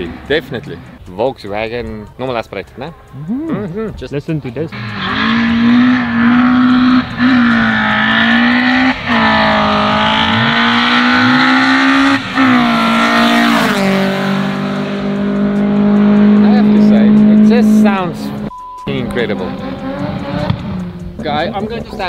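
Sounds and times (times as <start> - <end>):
car engine revving hard: 4.7 - 18.5, 19.1 - 21.5.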